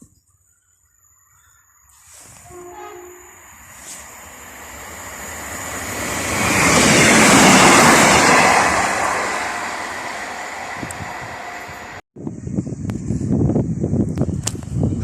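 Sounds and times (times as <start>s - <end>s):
train passing at speed: 2.1s - 12.0s.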